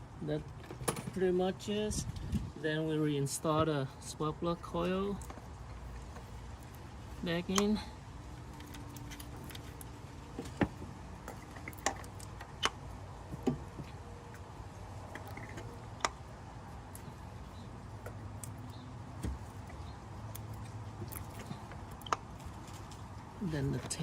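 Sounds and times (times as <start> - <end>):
ignition coil clicks and knocks: 8.4 - 17.1.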